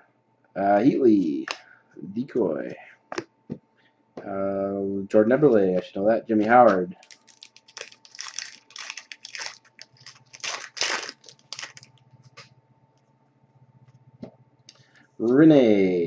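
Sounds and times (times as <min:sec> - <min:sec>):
trading cards rustling: 0:06.7 - 0:12.5.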